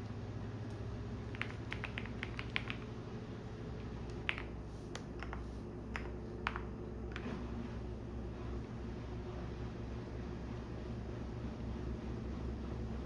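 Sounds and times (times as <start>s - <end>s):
washing machine humming: 0.0s - 13.0s
keyboard typing: 1.3s - 3.0s.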